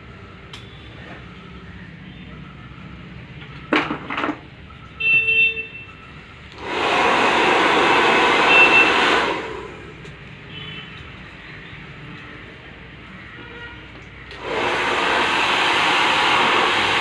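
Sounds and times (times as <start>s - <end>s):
hair dryer blowing: 6.5s - 10.2s, 14.3s - 17.0s.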